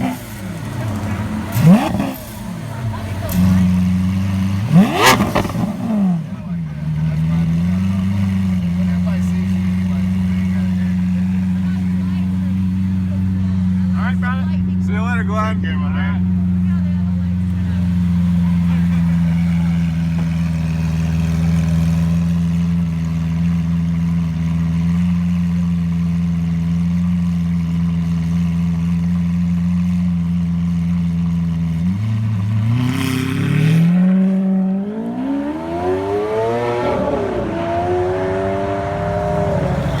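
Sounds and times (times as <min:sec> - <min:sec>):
car accelerating through gear changes: 0:00.0 - 0:13.6, 0:31.9 - 0:40.0
sports car engine idling and revving: 0:00.0 - 0:40.0.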